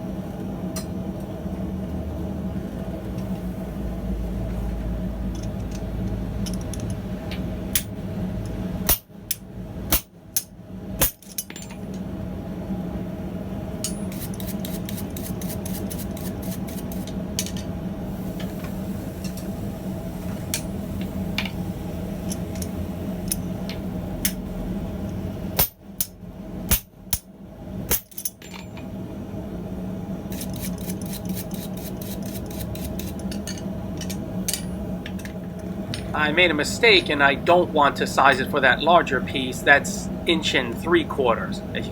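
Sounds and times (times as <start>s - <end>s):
forge humming: 0.0s - 41.9s
hammer striking steel on anvil: 8.9s - 11.6s, 25.6s - 27.3s, 27.9s - 28.7s.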